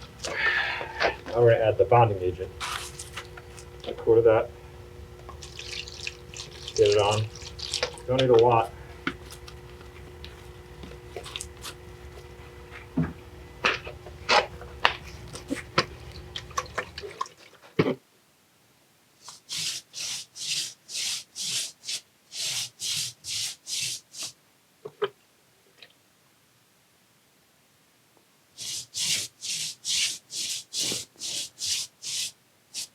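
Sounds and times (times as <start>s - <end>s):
brush scrubbing masonry: 0.0s - 4.5s, 5.2s - 17.3s, 19.2s - 24.4s, 28.6s - 32.9s.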